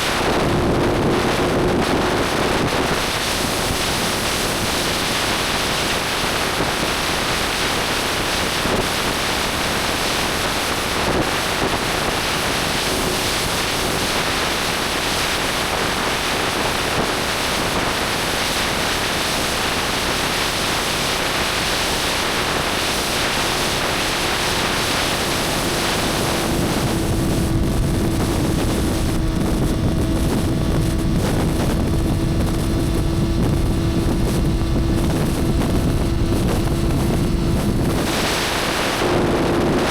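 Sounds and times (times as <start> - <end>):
wind rush over microphone: 0.0 - 39.9
motorcycle engine hum: 22.1 - 39.9.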